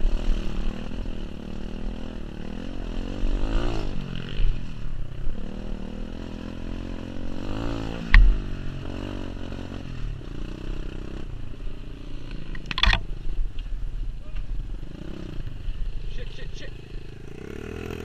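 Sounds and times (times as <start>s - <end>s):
motorbike engine revving: 0.0s - 11.4s, 14.6s - 18.0s
sharp crack with low thump: 8.0s - 8.5s.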